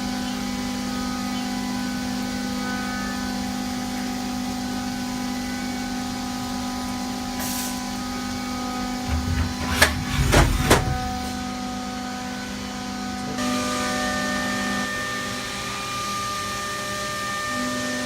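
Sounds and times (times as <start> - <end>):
lathe humming: 4.0 - 14.7
machine knocks: 9.0 - 11.6
low rumbling: 9.0 - 12.0.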